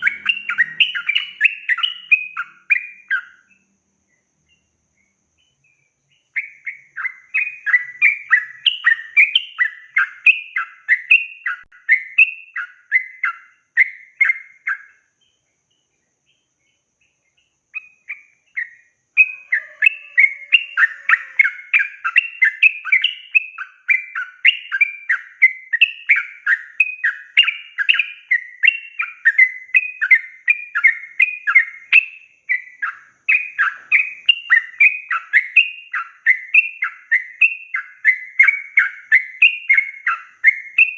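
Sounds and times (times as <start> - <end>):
bird singing bubbly chattering notes: 0.0 - 3.3.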